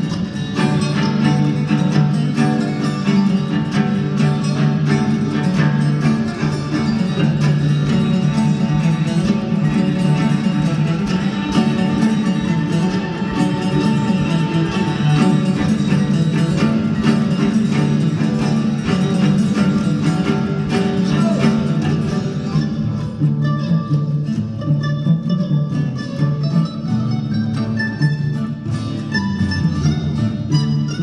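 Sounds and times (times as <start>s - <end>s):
band playing music: 0.5s - 23.0s.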